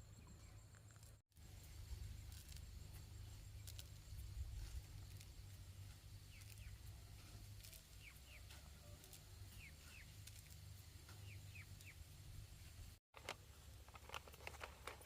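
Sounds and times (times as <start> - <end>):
bird chirps: 7.6 - 12.1.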